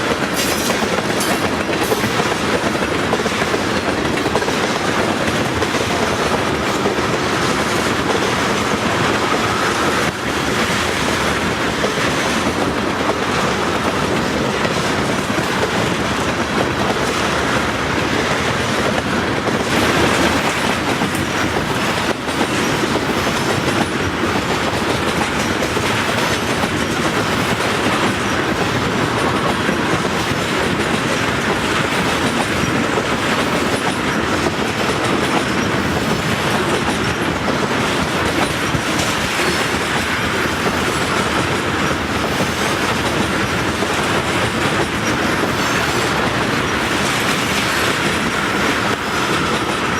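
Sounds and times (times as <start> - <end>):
train rumbling past: 0.0 - 49.9
wheels clattering over rail joints: 0.0 - 49.9.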